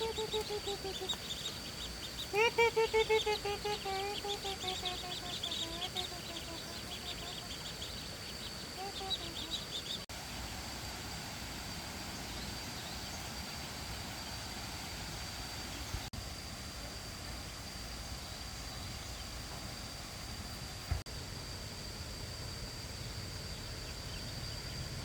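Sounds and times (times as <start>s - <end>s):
duckling peeps: 0.0s - 10.0s
rural outdoor background noise: 0.0s - 25.0s.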